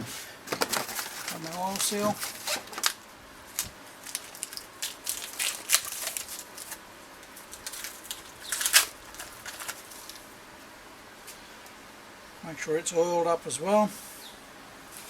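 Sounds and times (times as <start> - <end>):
plastic crinkling and rustling: 0.0 - 10.4.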